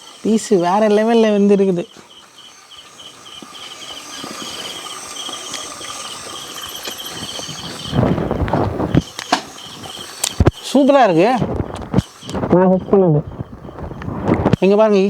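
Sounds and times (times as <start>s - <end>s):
crickets chirping: 0.0s - 15.0s
small clicks: 1.9s - 14.9s
rustling noise: 11.4s - 14.7s.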